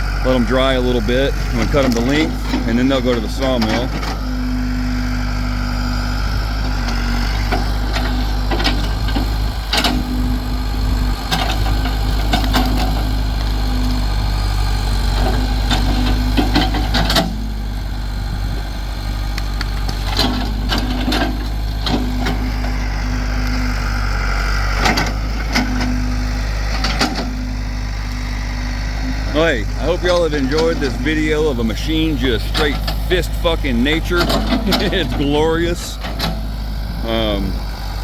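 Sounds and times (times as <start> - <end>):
backhoe engine running: 0.0 - 38.0
engine whine: 0.0 - 38.0
bucket clanking and knocking: 34.2 - 36.4.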